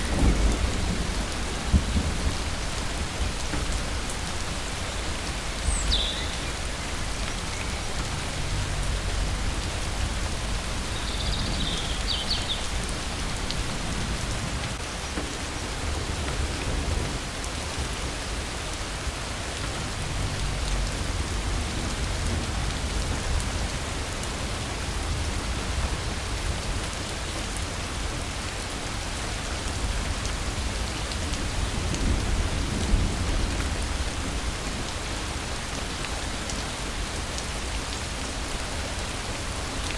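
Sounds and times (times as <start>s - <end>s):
thunder rolling: 0.0s - 3.7s
heavy rain falling: 0.0s - 39.9s.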